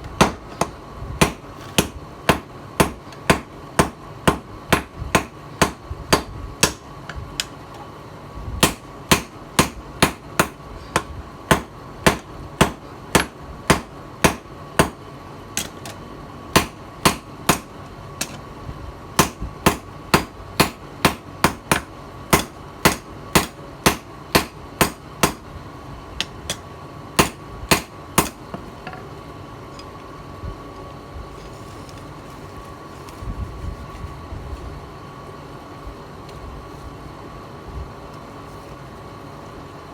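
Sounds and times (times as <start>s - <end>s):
hammer striking steel on anvil: 19.2s - 25.4s, 27.2s - 28.4s.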